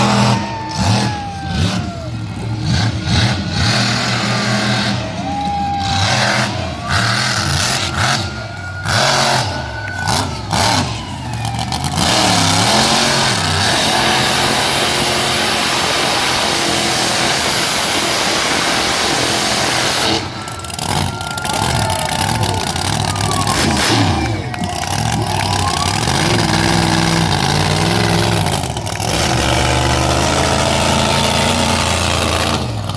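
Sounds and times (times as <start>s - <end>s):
truck engine revving: 0.0s - 32.9s
loud rushing noise: 12.0s - 28.6s.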